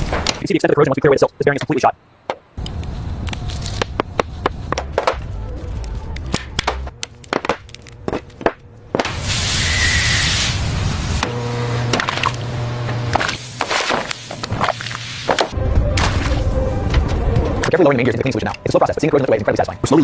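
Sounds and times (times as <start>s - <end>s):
low rumble: 2.6s - 9.8s
burst of hiss: 9.1s - 11.2s, 13.3s - 15.5s.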